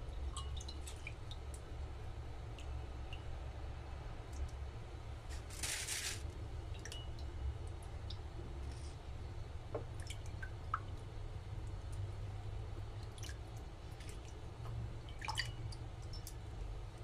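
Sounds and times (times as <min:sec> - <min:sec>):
water dripping: 0:00.0 - 0:04.7, 0:06.6 - 0:08.4, 0:09.7 - 0:17.0
water splashing in a bowl: 0:00.3 - 0:01.6, 0:13.0 - 0:16.4.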